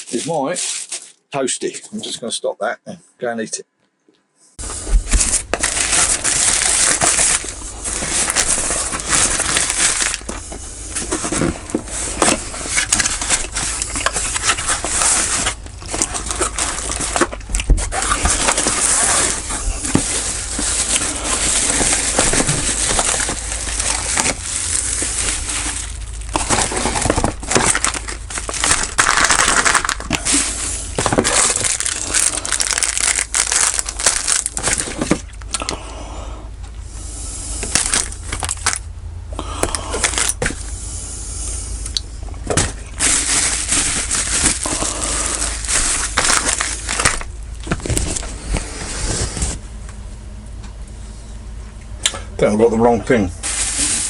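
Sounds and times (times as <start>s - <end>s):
packaging crumpling and tearing: 0.0s - 1.2s, 4.6s - 35.7s, 37.6s - 38.9s, 39.6s - 40.6s, 42.5s - 49.6s, 53.4s - 54.0s.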